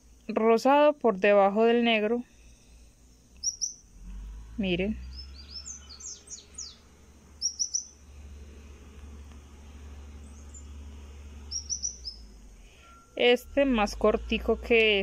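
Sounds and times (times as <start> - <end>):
low steady hum: 0.0 - 15.0
small bird chirping: 3.1 - 3.9, 5.0 - 8.1, 10.0 - 13.4.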